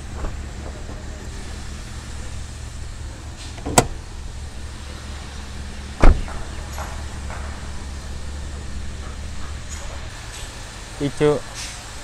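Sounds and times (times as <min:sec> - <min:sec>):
steady low hum: 0:00.0 - 0:12.0
car bonnet clunks: 0:03.4 - 0:04.0, 0:06.0 - 0:07.8.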